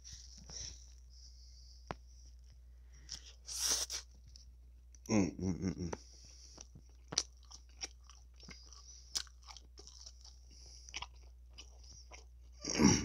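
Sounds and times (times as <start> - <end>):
wet chewing and mouth clicks: 6.5 - 12.6
food crunches: 6.6 - 12.4.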